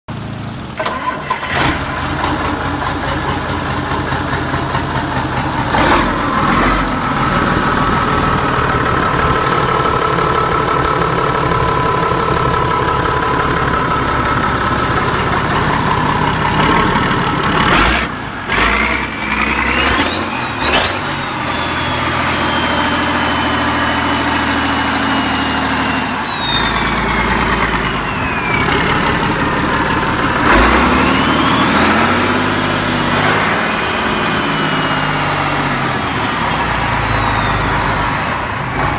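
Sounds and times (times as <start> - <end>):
diesel engine running: 0.1 - 38.9
high engine whine: 0.1 - 38.9.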